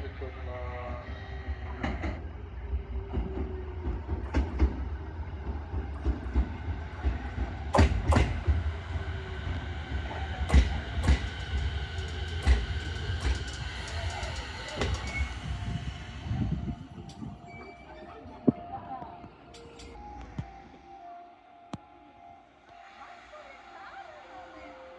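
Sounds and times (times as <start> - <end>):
train rumbling: 0.0 - 20.9
wheels clacking over rail joints: 10.4 - 15.6.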